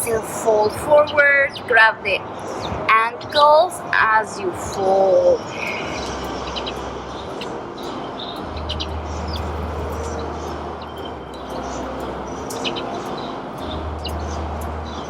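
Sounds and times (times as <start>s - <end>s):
outdoor background noise: 0.0s - 15.0s
small birds chirping: 0.0s - 15.0s
low hum: 4.4s - 15.0s.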